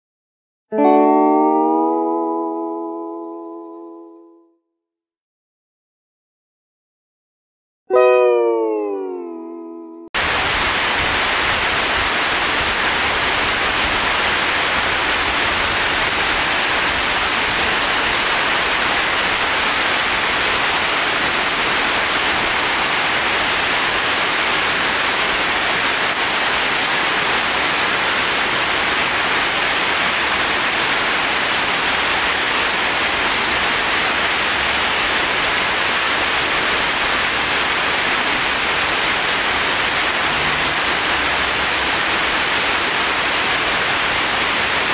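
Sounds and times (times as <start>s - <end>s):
heavy rain on foliage: 10.2s - 44.9s.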